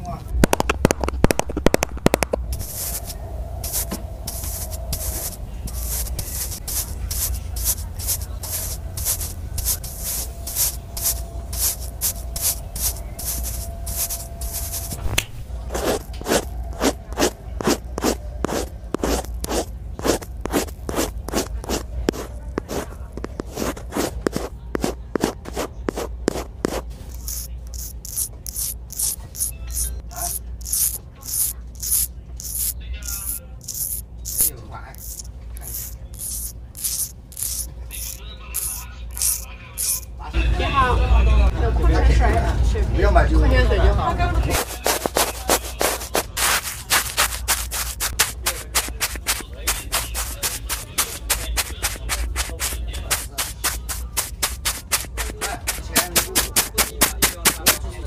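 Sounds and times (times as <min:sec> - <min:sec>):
low hum: 0:00.0 - 0:23.9
rhythmic scraping strokes: 0:00.5 - 0:40.1, 0:44.5 - 0:58.0.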